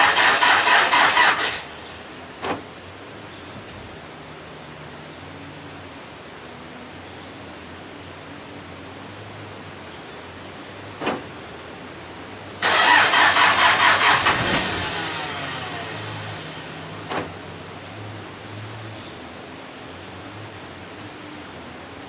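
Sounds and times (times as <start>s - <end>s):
engine cranking: 0.0s - 1.8s, 12.6s - 17.3s.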